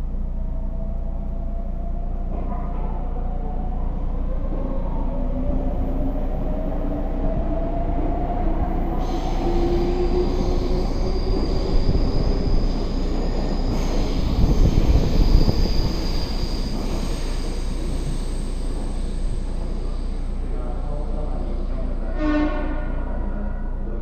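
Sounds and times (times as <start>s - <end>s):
high wheel squeal: 8.9s - 20.0s.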